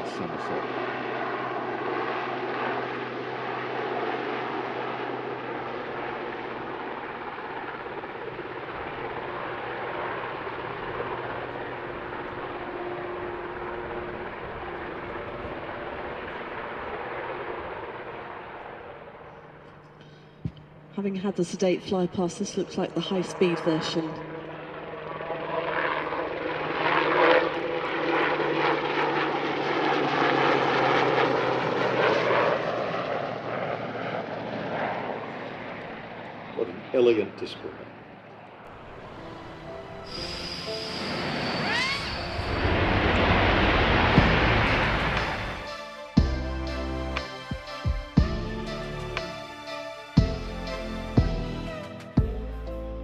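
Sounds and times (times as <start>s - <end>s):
helicopter in flight: 0.0s - 52.4s
rotor blades beating: 37.8s - 52.5s.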